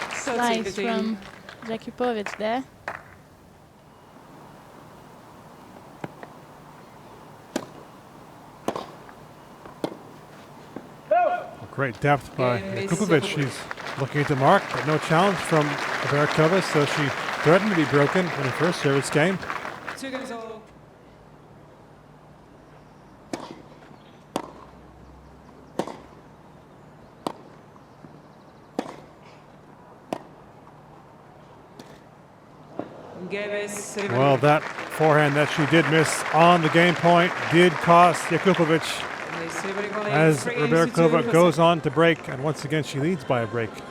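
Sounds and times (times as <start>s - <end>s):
rackets striking tennis ball: 7.5s - 7.9s, 8.6s - 10.9s
tennis ball bouncing: 7.5s - 7.9s, 8.6s - 10.2s, 25.8s - 26.1s.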